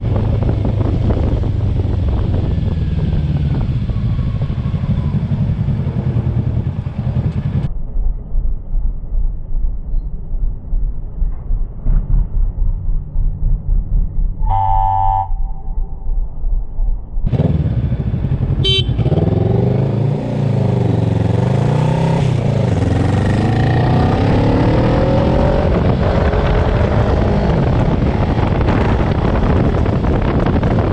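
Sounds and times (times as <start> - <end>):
motorcycle engine accelerating: 0.0 - 30.9
wind noise: 0.0 - 30.9
horn honking: 14.4 - 15.9, 18.6 - 19.3.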